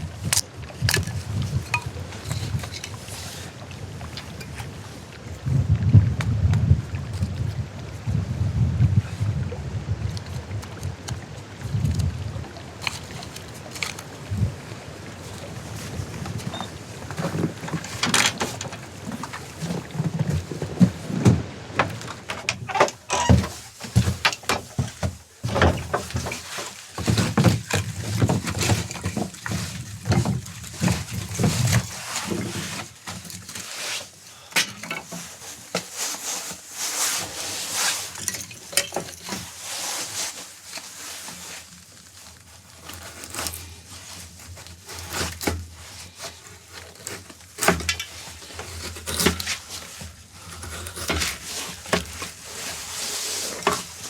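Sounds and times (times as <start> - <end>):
objects being handled: 0.2 - 4.7.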